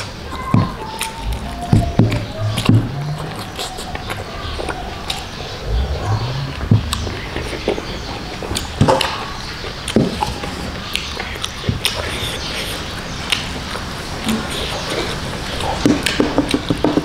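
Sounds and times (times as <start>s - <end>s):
chewing and lip smacking: 0.0s - 17.0s.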